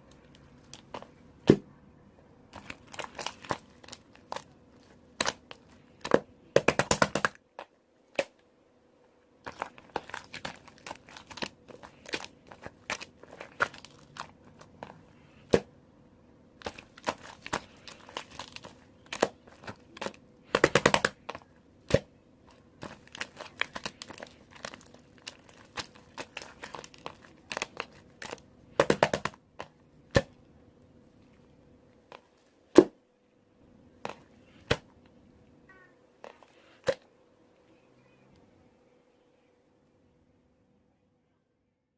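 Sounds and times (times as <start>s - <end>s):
slime crackling: 2.6s - 8.3s, 9.4s - 15.6s, 16.6s - 30.3s
slime squished by hand: 9.4s - 15.7s, 16.6s - 30.3s.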